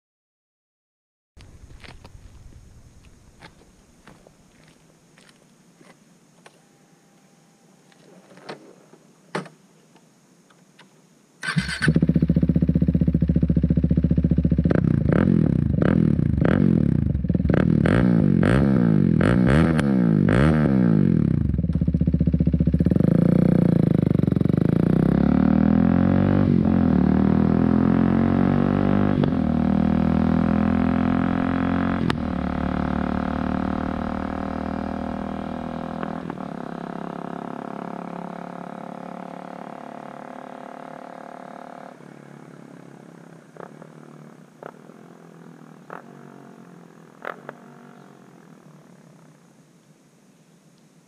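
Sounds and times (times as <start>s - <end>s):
motorcycle engine revving and idling: 11.4s - 49.4s.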